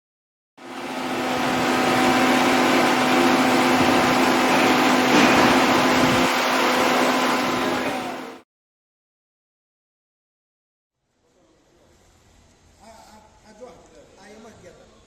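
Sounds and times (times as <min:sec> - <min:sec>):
spice grinder running: 0:00.6 - 0:08.4.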